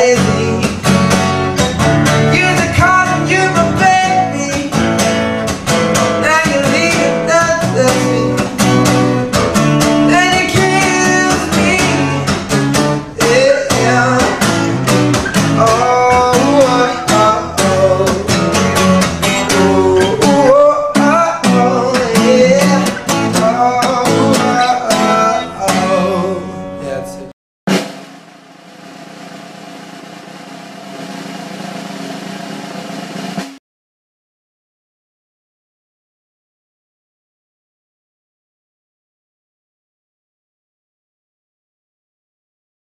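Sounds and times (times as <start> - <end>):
song with guitar and singing: 0.0 - 27.0.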